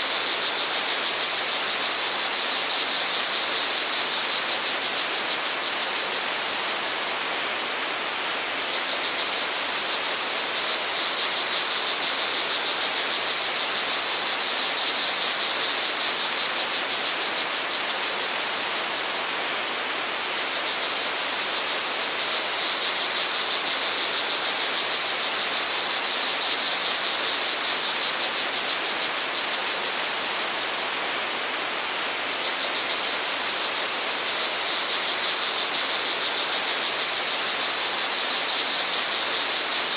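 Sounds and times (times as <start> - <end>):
crickets trilling: 0.0 - 7.6, 8.5 - 19.2, 20.2 - 30.8, 32.2 - 39.9.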